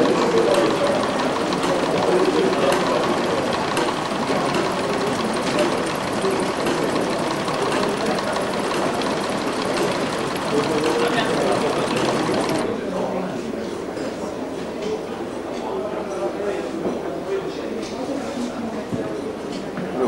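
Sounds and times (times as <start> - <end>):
small machine clattering: 0.0 - 12.7.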